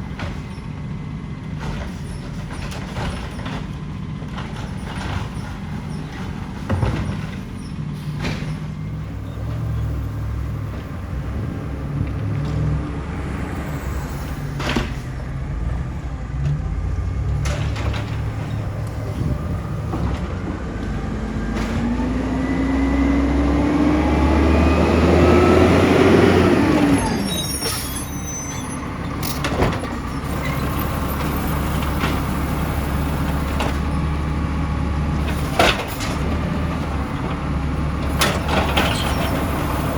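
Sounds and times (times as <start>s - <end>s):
garbage truck diesel engine revving: 3.9s - 39.9s.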